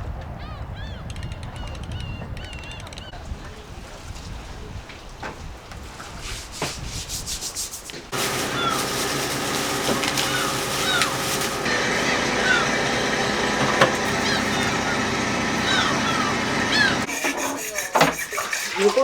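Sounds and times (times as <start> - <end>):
steady mechanical hum: 8.1 - 17.4
short chirping calls: 8.2 - 17.1
knife scraping fish: 17.1 - 19.0.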